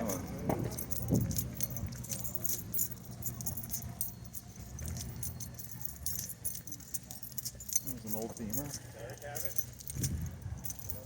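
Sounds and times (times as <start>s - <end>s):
steady low rumble: 0.0s - 7.8s
light metallic jingling: 0.0s - 11.0s.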